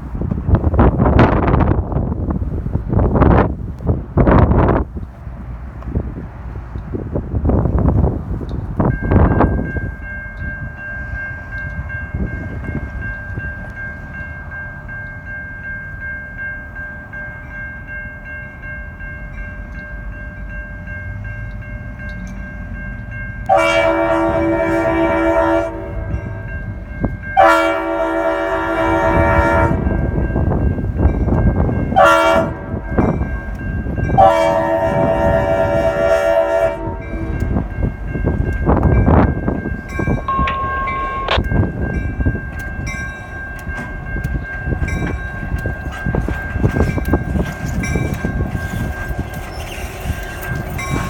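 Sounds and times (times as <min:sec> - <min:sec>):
diesel locomotive rumble: 0:00.0 - 0:51.0
locomotive air horn blasts: 0:23.5 - 0:26.5, 0:27.4 - 0:30.0, 0:32.0 - 0:32.9, 0:34.2 - 0:37.6.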